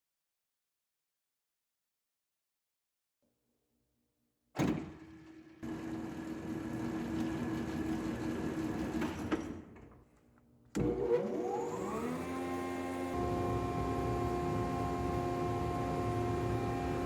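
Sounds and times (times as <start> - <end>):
woodworking machine motor running: 5.2 - 9.4, 10.8 - 17.0
motor whine spinning up: 10.8 - 17.0.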